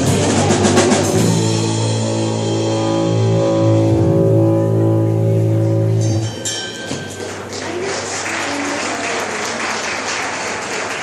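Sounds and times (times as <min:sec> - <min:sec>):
band chord on guitar and bass: 0:00.0 - 0:07.6
audience applause: 0:07.1 - 0:11.0.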